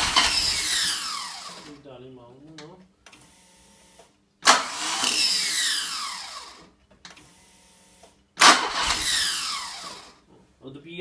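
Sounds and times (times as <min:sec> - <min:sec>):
engine cranking with falling whine: 0:00.0 - 0:01.8, 0:04.4 - 0:07.4, 0:08.4 - 0:10.2
engine firing briefly: 0:08.4 - 0:10.1.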